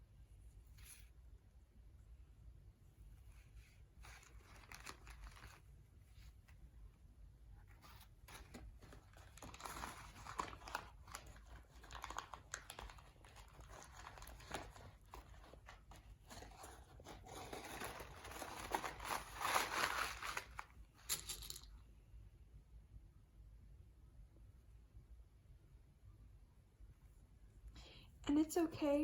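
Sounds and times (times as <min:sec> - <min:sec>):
paper filters crinkling: 0:03.6 - 0:06.5, 0:07.7 - 0:21.6.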